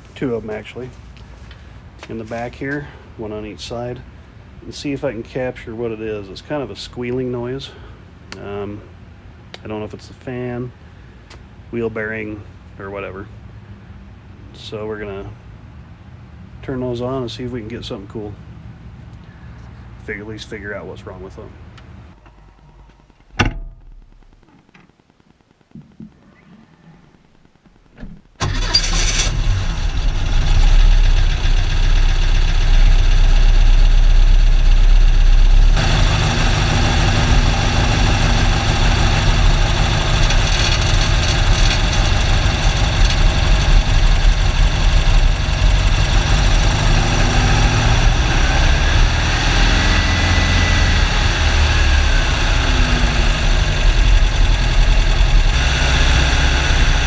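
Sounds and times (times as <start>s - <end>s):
car engine starting and idling: 28.4s - 57.0s.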